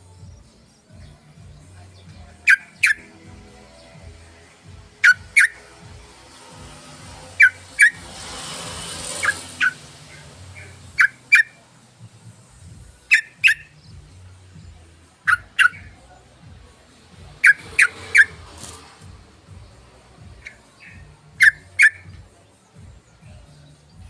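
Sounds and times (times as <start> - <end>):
bulbul calling sharp notes: 1.6 - 11.7, 12.5 - 16.1, 17.2 - 22.4.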